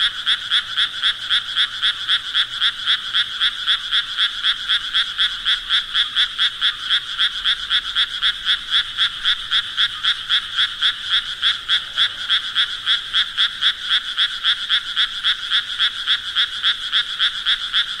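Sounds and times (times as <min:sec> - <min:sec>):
frogs croaking: 0:00.0 - 0:18.0.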